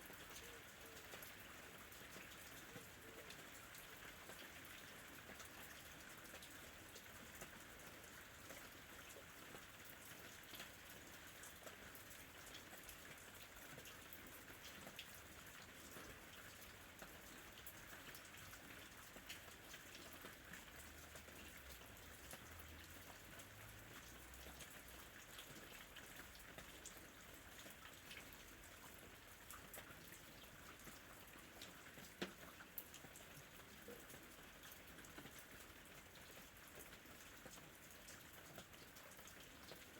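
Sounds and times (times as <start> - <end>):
faint steady rain: 0.0 - 39.9
raindrop ticks: 17.0 - 39.9.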